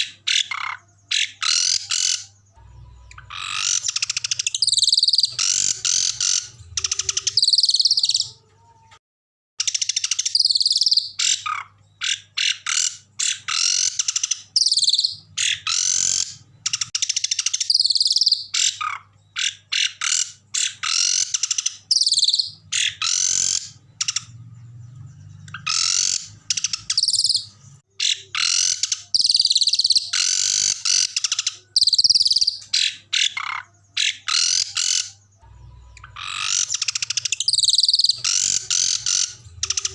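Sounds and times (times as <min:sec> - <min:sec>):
songbird chattering and trilling: 0:00.0 - 0:08.4, 0:09.6 - 0:39.9.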